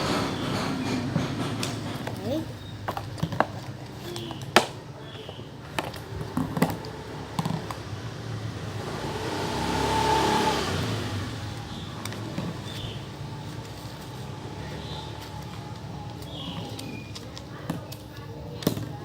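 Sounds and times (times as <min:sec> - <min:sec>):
motor vehicle passing by: 0:06.7 - 0:15.9.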